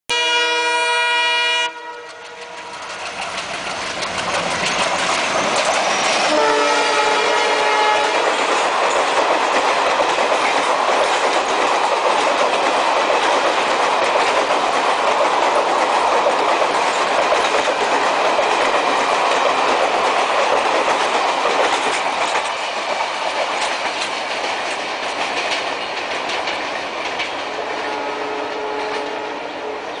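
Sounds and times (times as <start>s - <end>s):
diesel locomotive horn: 0.1s - 2.8s, 6.2s - 8.4s, 27.6s - 30.0s
train coaches rushing past: 0.6s - 30.0s.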